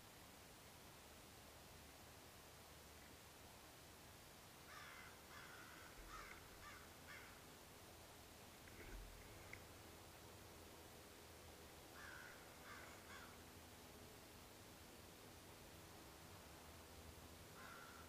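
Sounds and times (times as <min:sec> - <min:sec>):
faint bird calls: 0:04.6 - 0:07.5, 0:11.9 - 0:13.4, 0:17.5 - 0:18.0.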